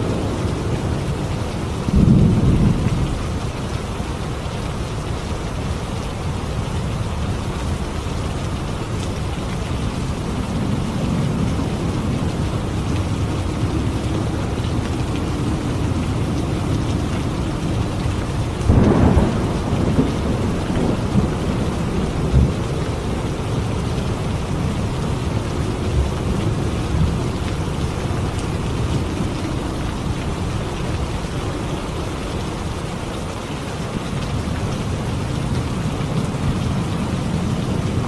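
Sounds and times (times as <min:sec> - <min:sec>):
thunder rumbles: 0:00.0 - 0:32.8
heavy rain: 0:00.0 - 0:38.0
thunder clap: 0:18.6 - 0:24.6.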